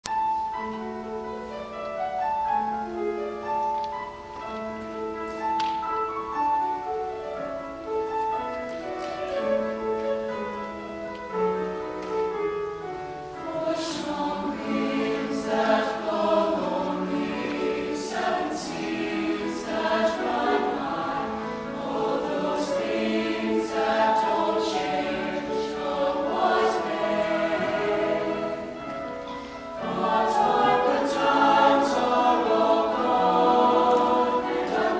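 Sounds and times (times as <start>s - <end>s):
choir singing: 13.3s - 34.9s.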